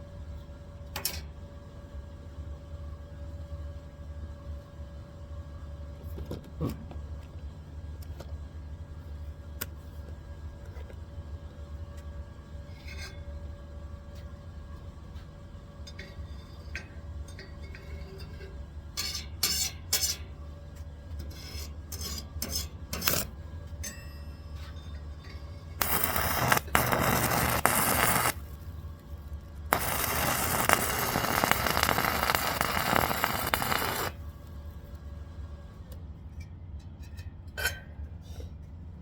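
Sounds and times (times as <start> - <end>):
steady low hum: 0.0 - 39.0
welding arc crackling: 25.8 - 28.6, 29.6 - 34.2.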